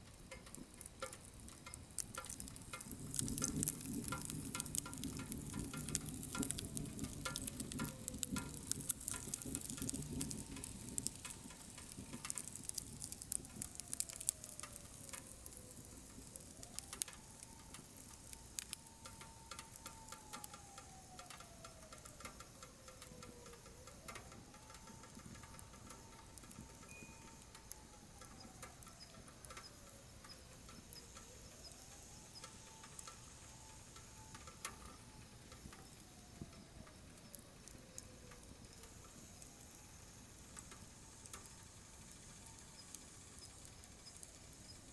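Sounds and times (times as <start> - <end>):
firewood crackling and popping: 0.0 - 44.9
faint whistle: 26.1 - 38.1, 41.0 - 44.9.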